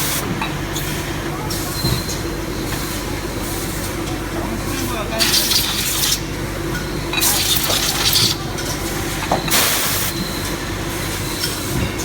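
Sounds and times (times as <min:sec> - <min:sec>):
steady machine hum: 0:00.0 - 0:09.2
machine hiss bursts: 0:09.5 - 0:10.2.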